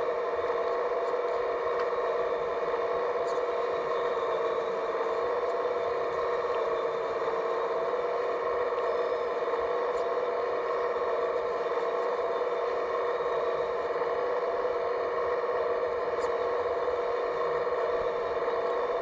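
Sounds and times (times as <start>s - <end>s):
small electric motor whine: 0.0s - 19.0s.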